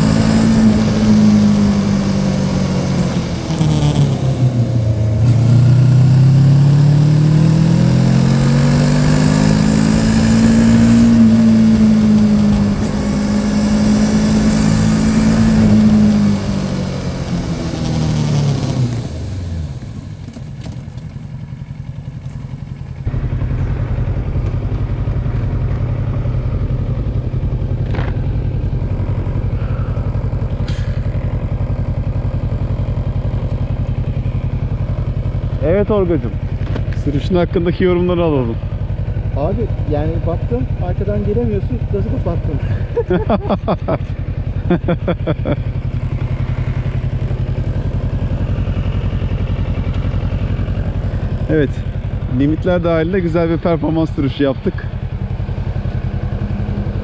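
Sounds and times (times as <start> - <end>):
motorcycle engine pulling under throttle: 0.0 - 57.0
motorcycle engine idling: 8.0 - 57.0.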